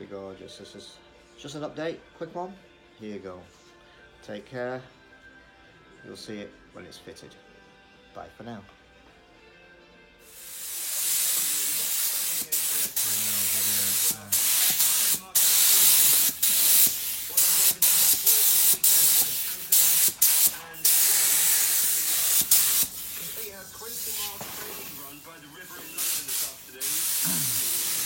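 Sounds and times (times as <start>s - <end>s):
spray paint hissing: 10.3s - 28.0s.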